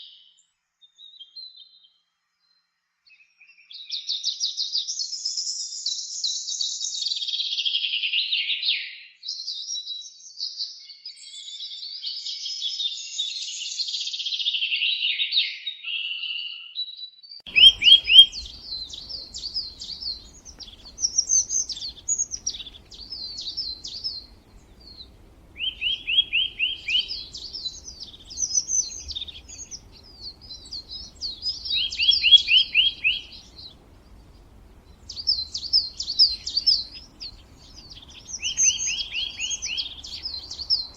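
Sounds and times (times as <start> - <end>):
bird trills: 17.5 - 40.9
faint low rumble: 17.5 - 40.9
songbirds chirping: 17.5 - 40.9.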